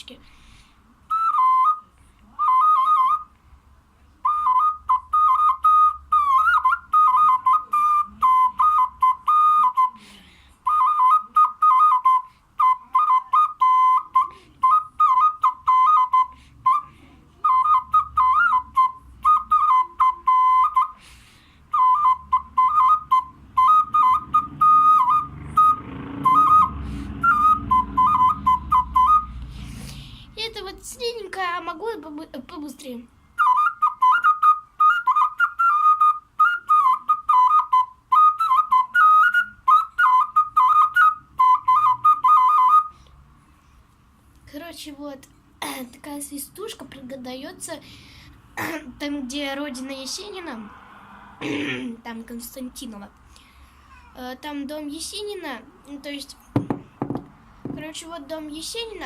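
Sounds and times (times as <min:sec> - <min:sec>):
clay whistle tune: 0:01.1 - 0:03.4, 0:04.2 - 0:10.0, 0:10.6 - 0:29.5, 0:33.3 - 0:43.2.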